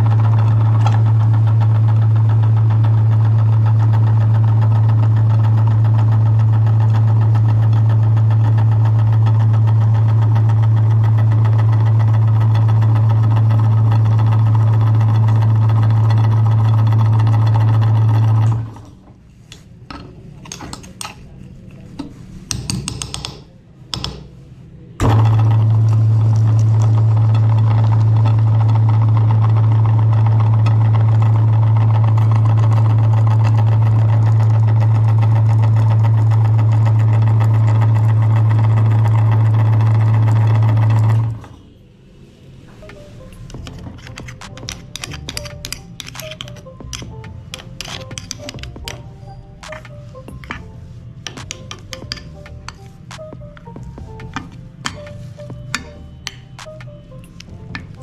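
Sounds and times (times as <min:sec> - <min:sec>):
electric meat grinder motor humming: 0:00.0 - 0:18.9, 0:25.0 - 0:41.6
clicks and knocks: 0:22.0 - 0:24.3, 0:51.3 - 0:58.0.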